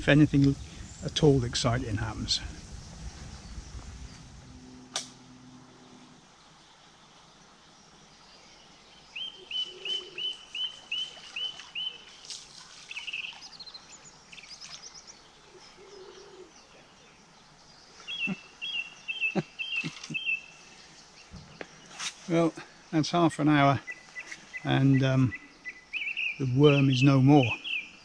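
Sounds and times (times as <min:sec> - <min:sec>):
songbird singing sharp notes: 0:02.6 - 0:22.3, 0:22.9 - 0:28.0
bird trill: 0:09.0 - 0:16.6, 0:18.0 - 0:20.9, 0:23.8 - 0:28.0.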